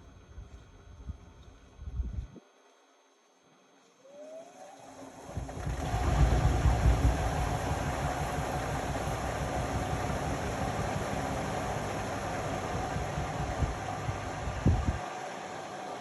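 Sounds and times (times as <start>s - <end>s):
washing machine motor whine: 4.0s - 16.0s
washing machine drum rumbling: 5.3s - 15.0s.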